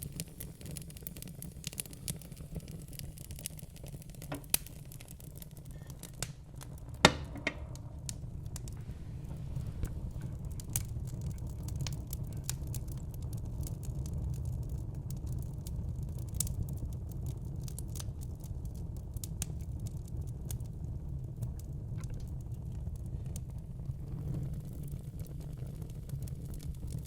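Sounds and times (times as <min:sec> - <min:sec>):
flames rumbling: 0:00.0 - 0:27.0
wood fire crackling and popping: 0:00.0 - 0:27.0.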